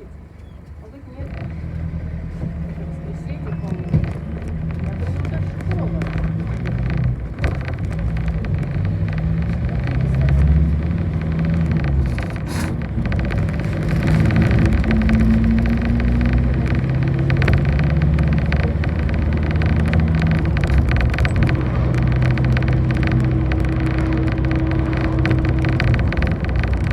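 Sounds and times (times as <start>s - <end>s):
bus engine: 0.0s - 26.9s
small rattles: 1.2s - 26.9s.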